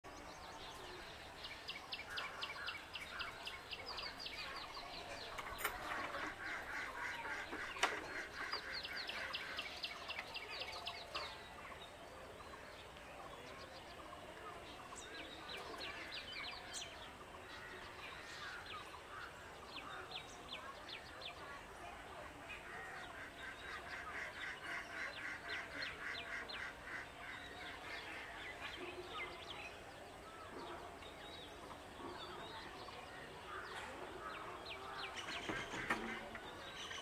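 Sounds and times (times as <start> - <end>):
birds chirping: 0.1 - 37.0.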